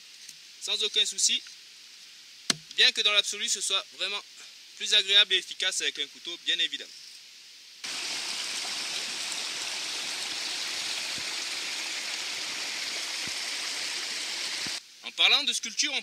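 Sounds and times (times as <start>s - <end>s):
water rushing over rocks: 7.8s - 14.8s.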